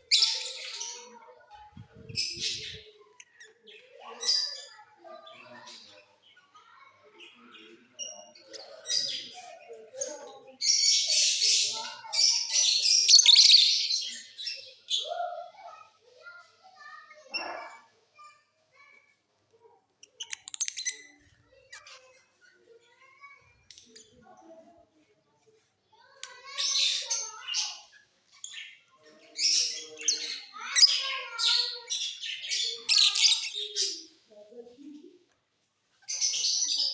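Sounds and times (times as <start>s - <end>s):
lovebirds chirping and chattering: 0.0s - 36.9s
rapid sharp bird chips: 20.1s - 21.2s.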